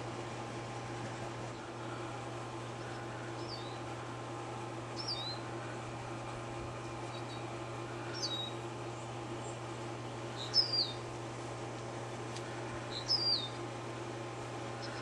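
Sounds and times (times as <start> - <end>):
steady low hum: 0.0 - 15.0
small bird chirping: 2.6 - 3.9, 5.0 - 5.5, 7.1 - 7.5, 8.1 - 8.6, 10.4 - 11.0, 12.9 - 13.6, 14.8 - 15.0.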